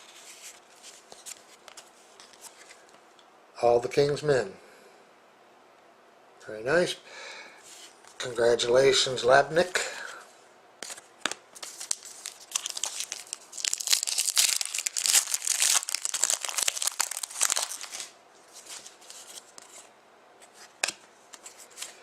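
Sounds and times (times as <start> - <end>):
cards being handled: 10.8 - 22.0
foil wrapper tearing and crinkling: 11.6 - 19.4.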